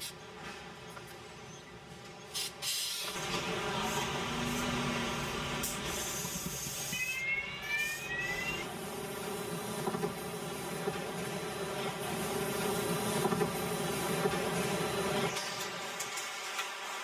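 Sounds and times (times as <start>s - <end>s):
hiss: 2.3s - 17.0s
factory machinery humming: 3.0s - 17.0s
rising machine whines: 6.9s - 8.8s.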